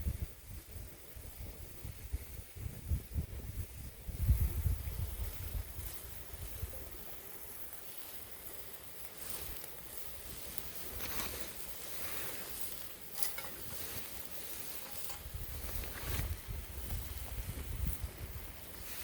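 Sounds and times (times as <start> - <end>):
fire crackling and popping: 0.0 - 19.0
wood fire hissing: 0.0 - 19.0.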